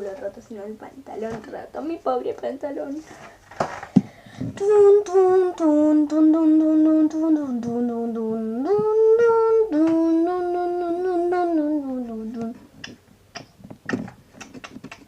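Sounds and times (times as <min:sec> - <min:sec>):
person humming: 0:04.5 - 0:13.5.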